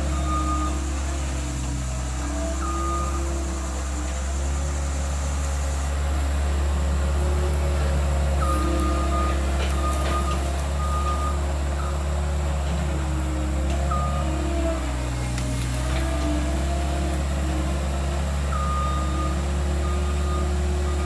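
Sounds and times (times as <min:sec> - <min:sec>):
reversing alarm beeping: 0:00.0 - 0:03.5, 0:08.3 - 0:12.2, 0:13.9 - 0:14.5, 0:17.7 - 0:21.0
skid steer engine running: 0:00.0 - 0:21.0.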